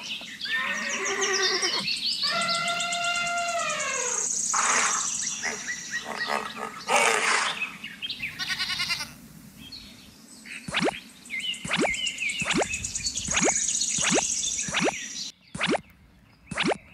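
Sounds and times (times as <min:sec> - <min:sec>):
animal calls: 0:00.0 - 0:09.1, 0:11.6 - 0:15.0.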